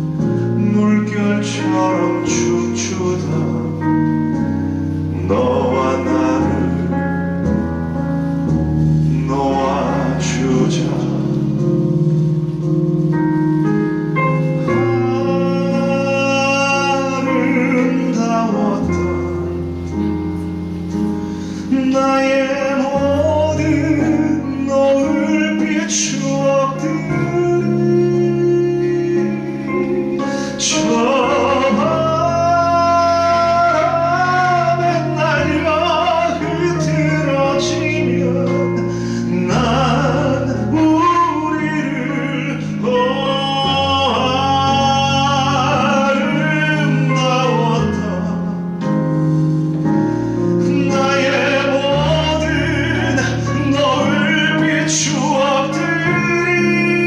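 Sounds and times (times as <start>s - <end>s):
instrumental accompaniment with bass: 0.0s - 57.0s
man singing long held notes: 5.0s - 7.2s, 9.1s - 11.6s, 14.6s - 19.6s, 21.6s - 48.6s, 50.6s - 57.0s.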